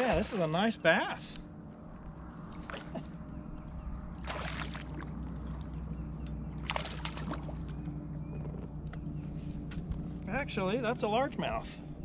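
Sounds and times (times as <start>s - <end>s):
water splashing and sloshing: 0.0s - 1.0s, 1.9s - 10.6s
boat motor humming: 0.0s - 12.0s.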